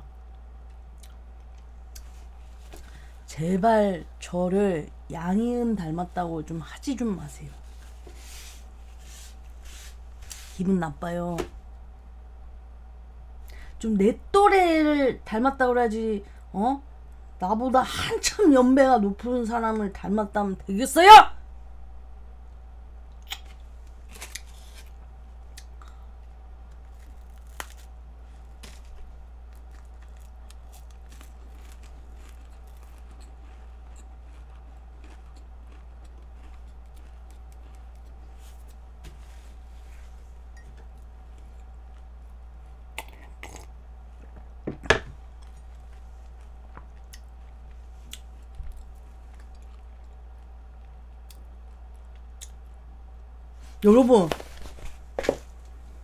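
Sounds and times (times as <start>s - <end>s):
low electrical hum: 0.0s - 56.0s
crunching pastry stick: 23.2s - 39.0s, 45.4s - 52.8s.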